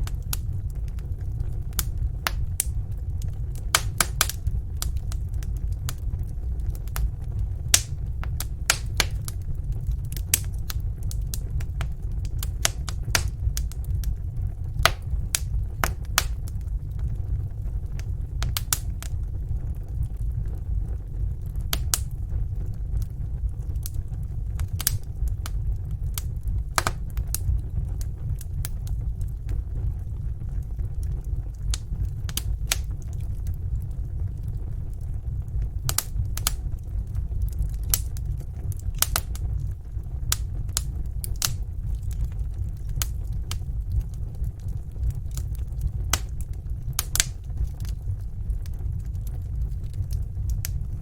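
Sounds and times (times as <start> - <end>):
low rumble of burning logs: 0.0 - 51.0
wood fire crackling and popping: 0.0 - 51.0.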